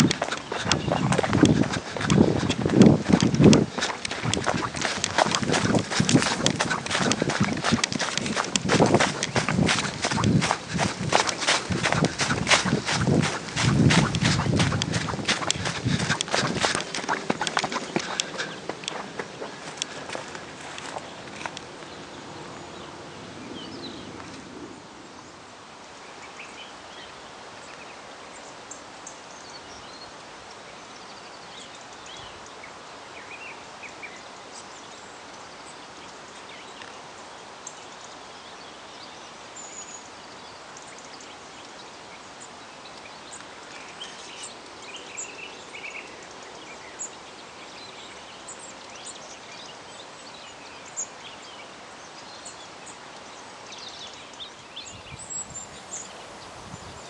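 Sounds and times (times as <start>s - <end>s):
outdoor background hiss: 0.0s - 57.0s.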